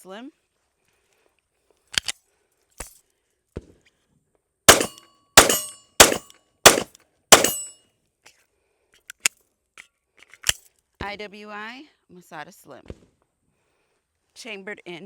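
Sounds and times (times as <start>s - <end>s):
pistol shots: 4.7s - 7.7s.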